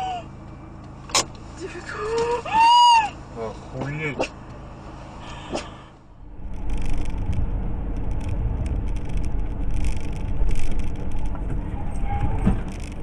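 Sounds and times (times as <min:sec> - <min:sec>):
car engine and road rumble: 0:00.0 - 0:13.0
crackling clicks: 0:06.4 - 0:11.6, 0:12.6 - 0:13.0.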